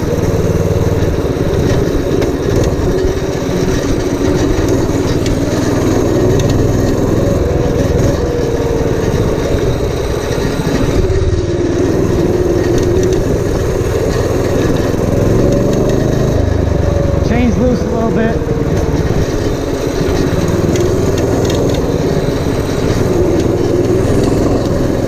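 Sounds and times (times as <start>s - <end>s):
small engine running steadily: 0.0s - 25.0s.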